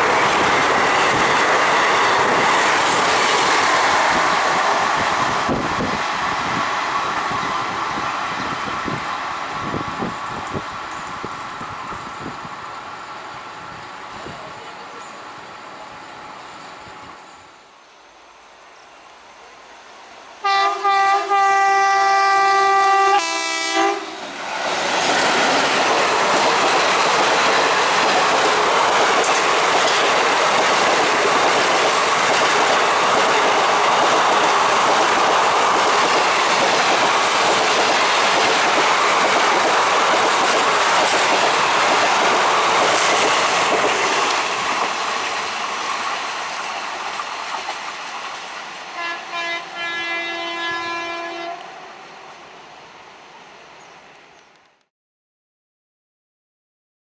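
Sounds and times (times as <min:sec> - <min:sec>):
train wheels rushing on rail: 0:00.0 - 0:17.8, 0:19.0 - 0:54.8
train horn: 0:20.4 - 0:24.2, 0:48.9 - 0:52.1.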